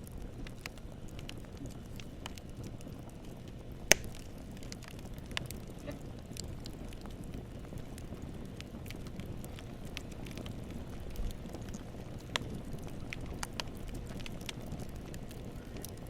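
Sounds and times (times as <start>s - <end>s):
campfire crackling and popping: 0.0s - 16.0s
low rumble of flames: 0.0s - 16.0s.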